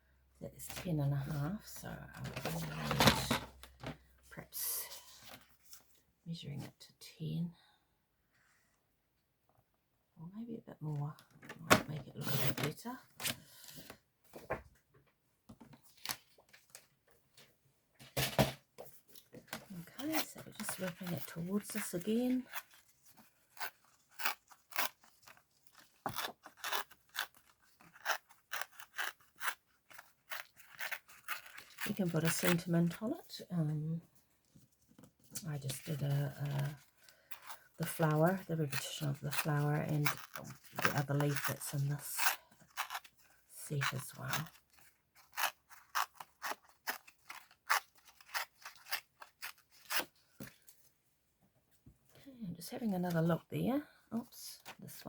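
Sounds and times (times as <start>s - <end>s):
scissors cutting paper: 19.6s - 33.0s, 35.6s - 50.1s
cardstock tearing: 19.9s - 32.7s, 35.7s - 43.2s, 43.8s - 50.1s.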